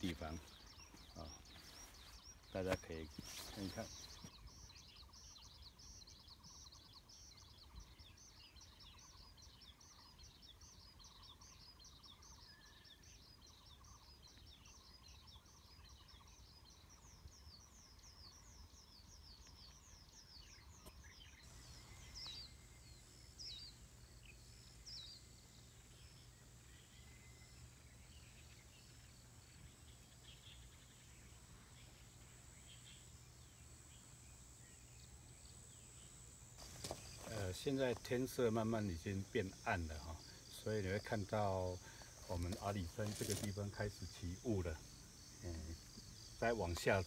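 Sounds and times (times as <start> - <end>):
bird calls: 0.0 - 47.0
small birds chirping: 0.0 - 47.0
faint steady hum: 21.5 - 47.0.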